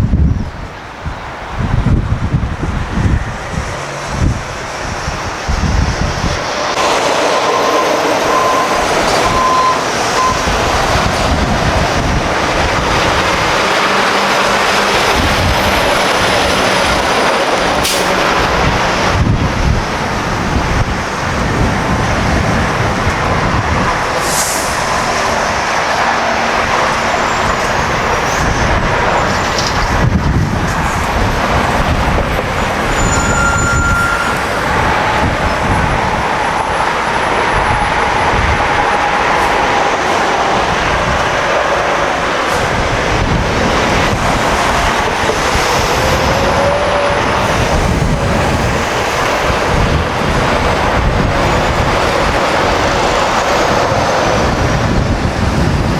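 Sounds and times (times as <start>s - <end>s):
heavy trucks passing on highway: 0.0s - 55.9s.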